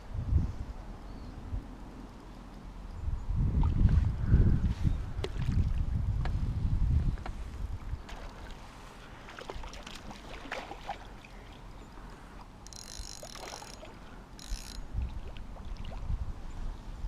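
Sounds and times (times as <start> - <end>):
wind rumble on microphone: 0.0 - 2.0, 2.7 - 8.9, 14.6 - 17.0
gear knocks and clicks: 12.6 - 14.8.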